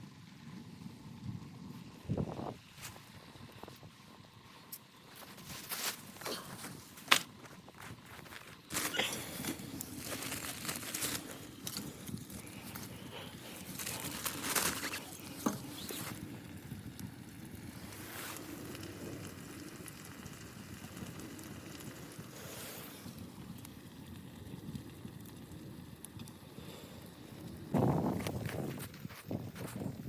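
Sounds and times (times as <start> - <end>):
wind blowing: 1.3 - 4.5.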